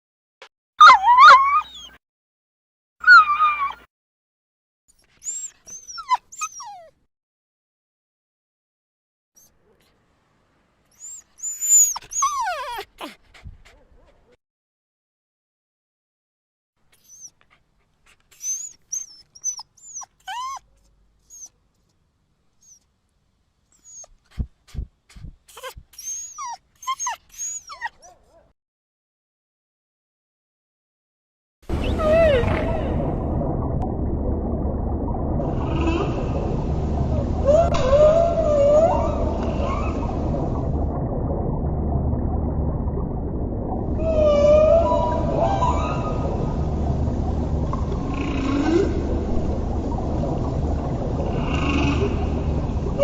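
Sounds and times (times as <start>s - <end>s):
dog whimpering and yipping: 0.8s - 2.0s, 3.0s - 3.9s, 5.0s - 7.0s, 10.9s - 14.2s, 17.0s - 21.5s, 23.8s - 28.4s, 31.8s - 32.8s, 37.4s - 40.2s, 44.0s - 46.4s
low thumps: 31.7s - 45.4s.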